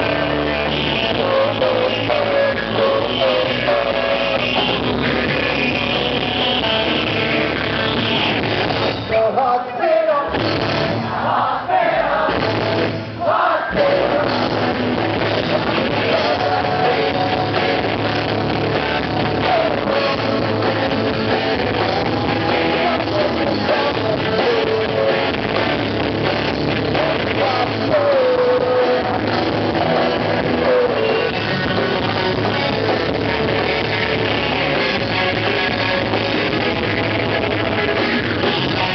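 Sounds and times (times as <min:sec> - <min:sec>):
person singing: 0:00.0 - 0:07.6, 0:13.2 - 0:36.6
rock band playing: 0:00.0 - 0:38.9.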